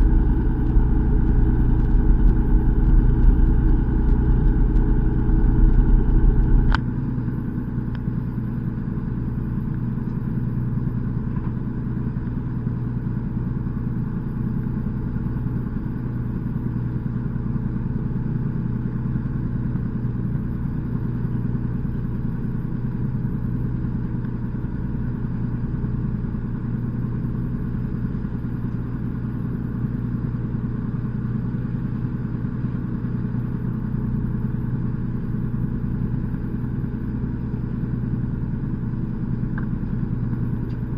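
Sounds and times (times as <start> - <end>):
boat engine humming: 0.0 - 17.7, 19.8 - 40.9
click: 40.3 - 40.9.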